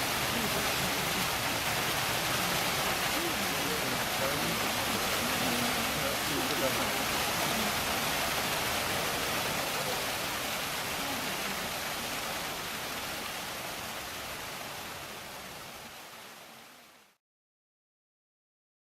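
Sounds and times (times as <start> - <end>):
running water rushing: 0.0 - 17.2.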